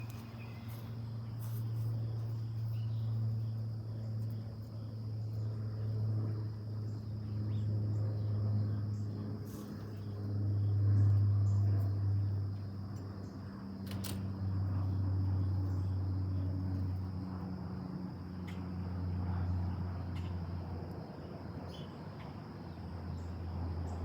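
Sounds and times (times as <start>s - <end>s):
low hum: 0.0s - 21.7s
insect chorus trilling: 0.0s - 24.0s.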